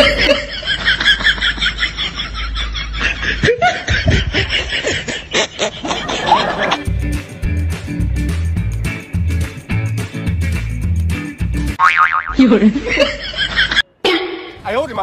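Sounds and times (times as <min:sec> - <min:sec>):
high-pitched rapid laughter: 0:00.0 - 0:06.8.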